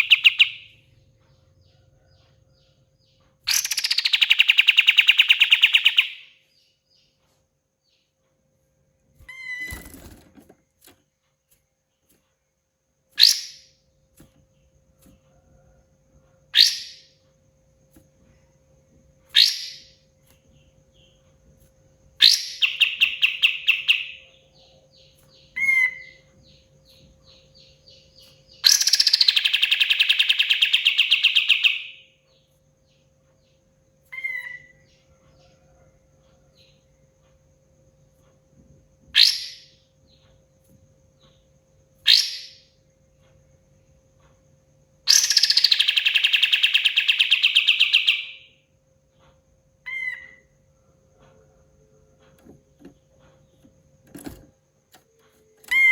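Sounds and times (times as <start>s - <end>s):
songbird whistling: 0.0s - 0.7s, 3.5s - 6.4s, 13.2s - 13.7s, 16.5s - 17.1s, 25.5s - 26.3s, 27.6s - 32.1s, 34.1s - 34.9s, 45.1s - 48.5s, 49.8s - 50.5s
faint steady hum: 0.0s - 55.9s
bird rattling trills: 3.5s - 6.0s, 9.2s - 10.5s, 45.1s - 48.3s, 52.4s - 55.9s.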